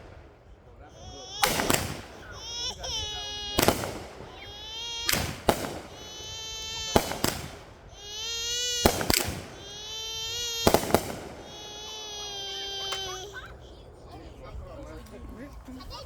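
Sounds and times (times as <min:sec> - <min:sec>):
firework bangs: 0:00.0 - 0:13.6
child crying: 0:00.9 - 0:14.6.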